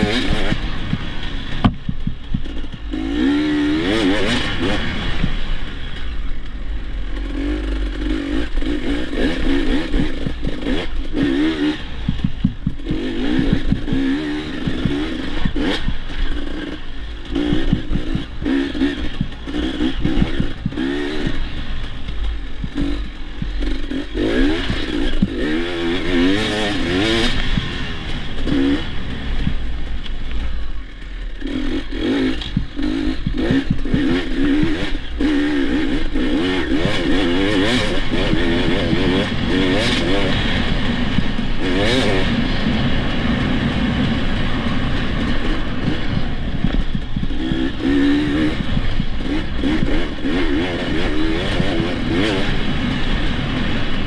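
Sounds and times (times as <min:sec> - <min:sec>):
dirt bike engine revving: 0:00.0 - 0:54.0
wind rumble on microphone: 0:35.9 - 0:54.0.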